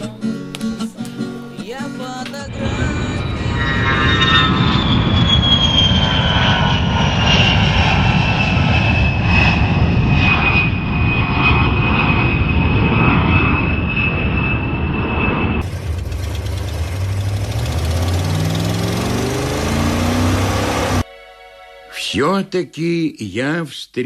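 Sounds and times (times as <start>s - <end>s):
jet airplane flying past: 2.5s - 21.1s.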